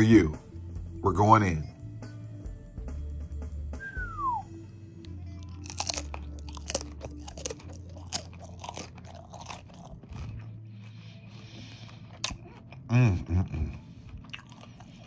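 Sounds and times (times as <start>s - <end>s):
cracker crunching: 5.0s - 15.0s.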